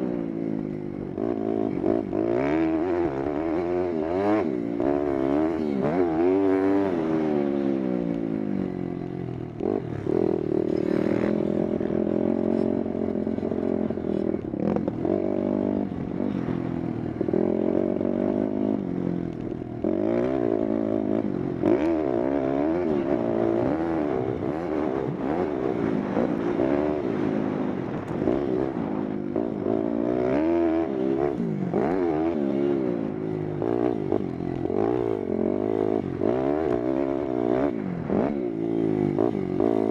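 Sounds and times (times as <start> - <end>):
pit bike engine revving: 19.8 - 39.9.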